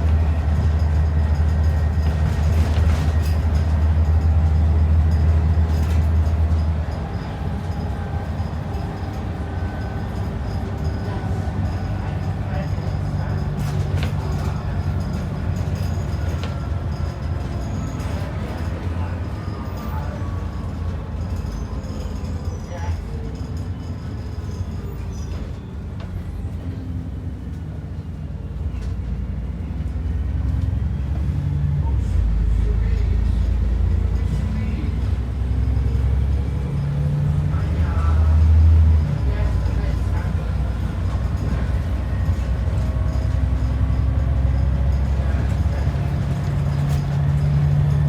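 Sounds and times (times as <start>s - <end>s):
bus engine and road rumble: 0.0s - 48.0s.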